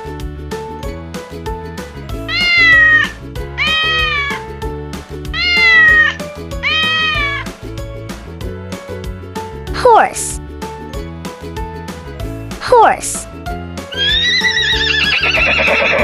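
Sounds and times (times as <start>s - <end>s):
background music with steady beat: 0.0s - 14.2s
cat meowing: 2.2s - 4.5s, 5.4s - 7.5s, 13.9s - 16.0s.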